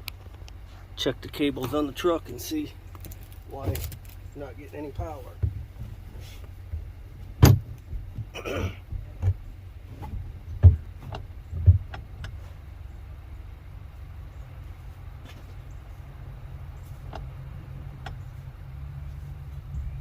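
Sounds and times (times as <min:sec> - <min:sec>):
light ticks: 0:00.0 - 0:00.6
steady low rumble: 0:00.0 - 0:20.0.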